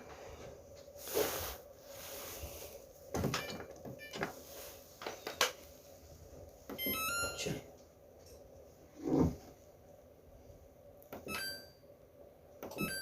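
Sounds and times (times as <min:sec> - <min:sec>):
short electronic beeps: 0:11.2 - 0:11.8.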